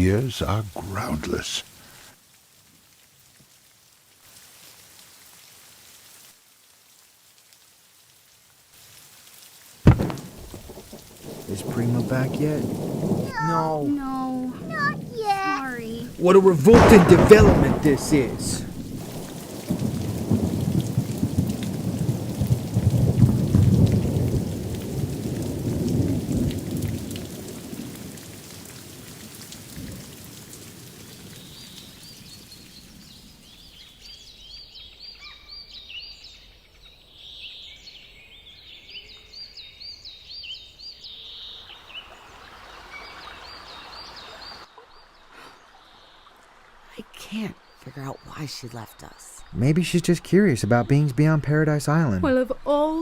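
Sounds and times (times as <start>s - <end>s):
steady rain: 0.0s - 53.0s
thunder rumbling: 9.9s - 28.2s
bird chirps: 31.4s - 42.3s.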